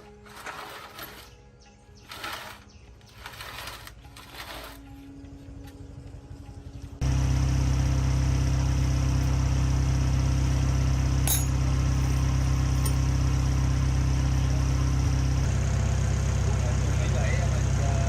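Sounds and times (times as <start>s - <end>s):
engine idling: 5.0s - 18.0s.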